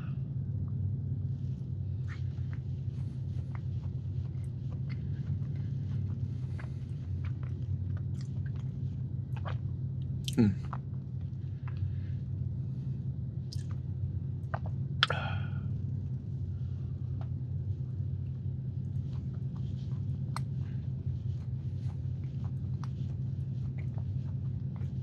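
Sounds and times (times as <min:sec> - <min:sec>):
steady low hum: 0:00.0 - 0:25.0
person chewing: 0:03.4 - 0:10.9, 0:13.5 - 0:13.8, 0:19.0 - 0:25.0
mouth clicks and smacks: 0:13.5 - 0:15.4.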